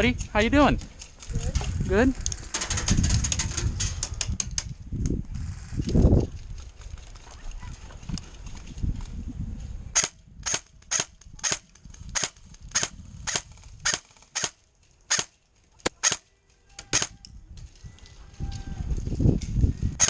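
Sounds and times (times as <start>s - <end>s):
airsoft gun firing: 10.0s - 16.2s.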